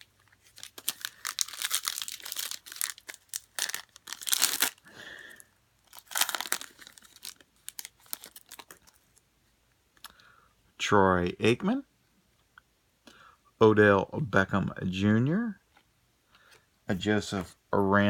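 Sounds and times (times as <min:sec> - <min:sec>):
card pack wrapper torn and crinkled: 0:00.0 - 0:04.9, 0:05.8 - 0:09.2.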